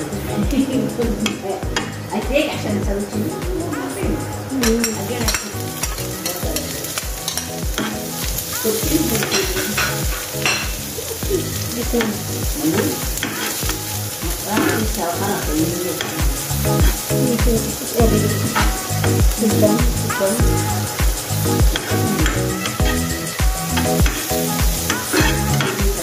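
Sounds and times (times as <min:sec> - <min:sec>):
background music with steady beat: 0:00.0 - 0:26.0
onion sizzling in hot oil: 0:00.0 - 0:26.0
spatula scraping and tapping pan: 0:09.0 - 0:10.8.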